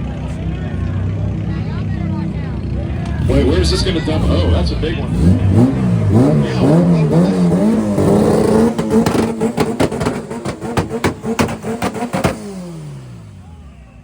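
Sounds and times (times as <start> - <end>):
car engine revving: 0.0 - 14.0
exhaust pops and bangs: 7.4 - 12.6.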